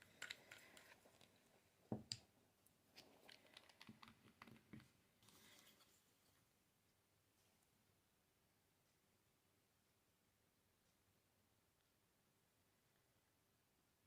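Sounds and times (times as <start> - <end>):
soft rustle: 4.8 - 7.9.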